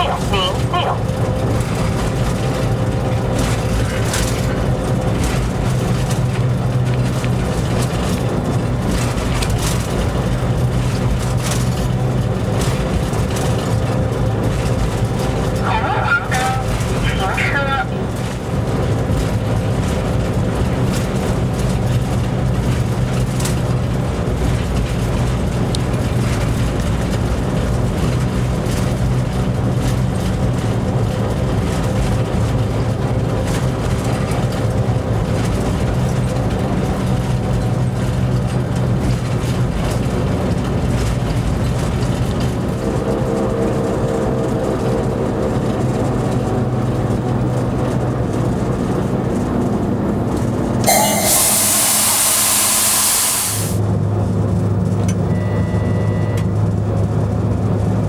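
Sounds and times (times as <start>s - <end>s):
higher hum: 0.0s - 1.3s, 50.9s - 53.8s
wheels clicking over track: 0.0s - 15.7s
locomotive engine drone: 0.0s - 55.4s.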